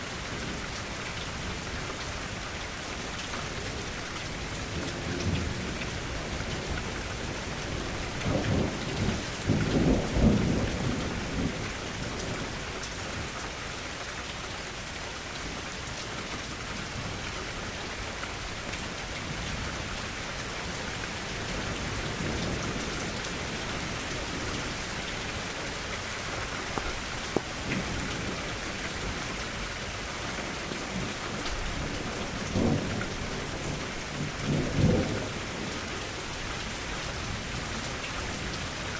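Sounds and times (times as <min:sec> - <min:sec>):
rain hissing: 0:14.6 - 0:38.9.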